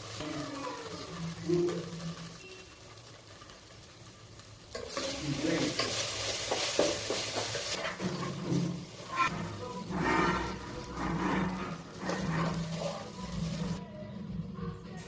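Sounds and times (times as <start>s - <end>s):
noodles sizzling in a pan: 0.0s - 13.8s.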